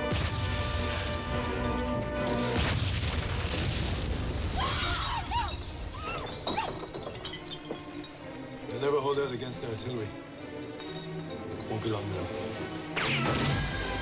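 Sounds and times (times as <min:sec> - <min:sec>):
orchestral film music: 0:00.0 - 0:02.9, 0:05.5 - 0:14.0
crashing and shattering: 0:00.0 - 0:09.5.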